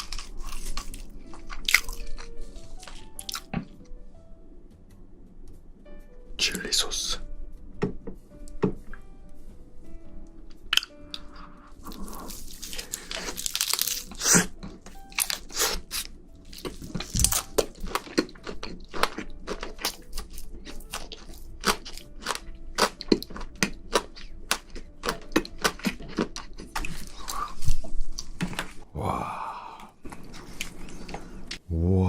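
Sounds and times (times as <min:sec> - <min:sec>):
prawn being crunched while eaten: 0:10.8 - 0:23.4.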